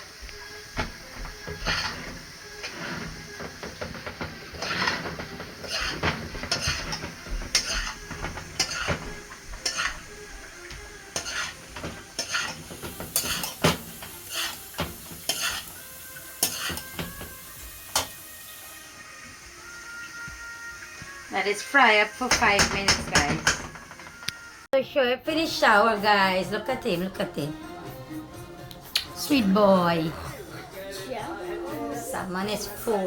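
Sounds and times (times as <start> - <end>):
rice frying: 0.0 - 24.7
spoon scraping and knocking pot: 0.7 - 18.2, 22.2 - 24.4.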